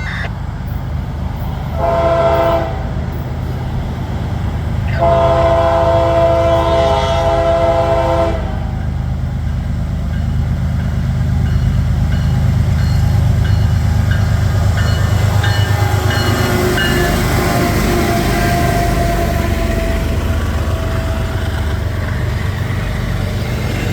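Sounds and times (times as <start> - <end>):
train rumbling past: 0.0 - 23.9
train horn chord: 1.7 - 2.9, 4.9 - 8.9, 15.4 - 21.9
wheels clacking on rails: 8.2 - 23.9.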